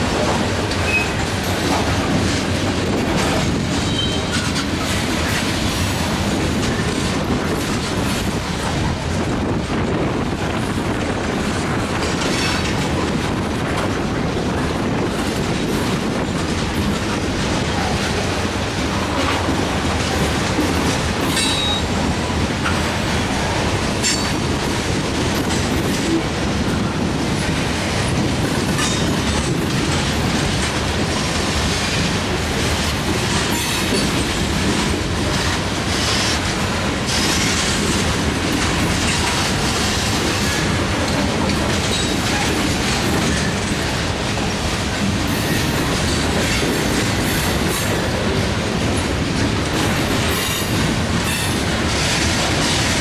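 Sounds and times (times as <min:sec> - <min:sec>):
wheels clacking over rail joints: 0:00.0 - 0:09.2, 0:10.6 - 0:53.0
train wheels rumbling on rail: 0:00.0 - 0:53.0
high wheel squeal: 0:21.3 - 0:21.9.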